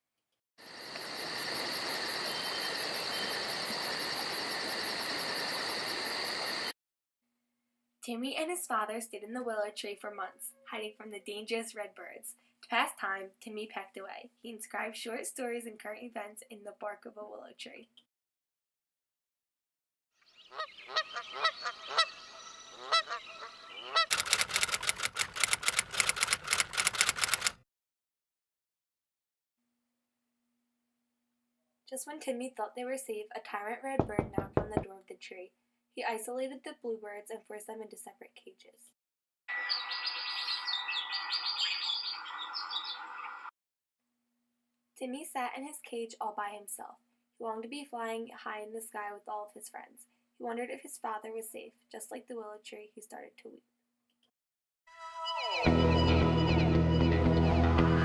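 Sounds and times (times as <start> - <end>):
crickets chirping: 0.6 - 6.7
steady high hiss: 0.7 - 6.7
bird honking: 20.4 - 24.1
rapid even tapping: 34.0 - 34.9.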